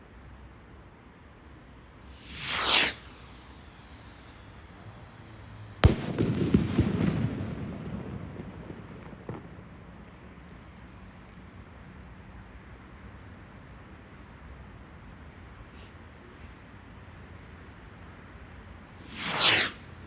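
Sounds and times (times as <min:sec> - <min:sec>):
firework whoosh: 0:01.7 - 0:10.2, 0:18.9 - 0:20.0
firework crackling: 0:01.7 - 0:11.0, 0:18.9 - 0:20.0
firework bang: 0:02.0 - 0:10.2, 0:19.0 - 0:19.8
small firework pop: 0:02.0 - 0:11.5.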